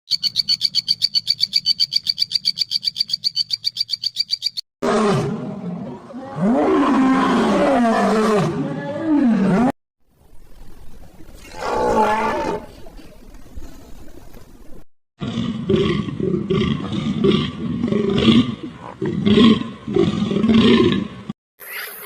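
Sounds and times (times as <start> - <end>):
large animal roaring and growling: 4.8 - 9.7, 11.4 - 12.8, 15.2 - 21.3.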